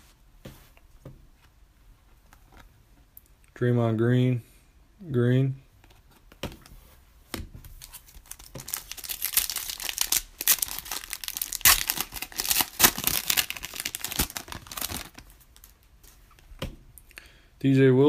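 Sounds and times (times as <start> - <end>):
wrapper tearing and crinkling: 7.8 - 15.8.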